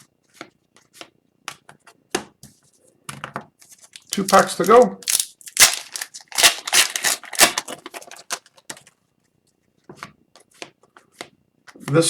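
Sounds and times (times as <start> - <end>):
card pack wrapper tearing: 3.7 - 8.9.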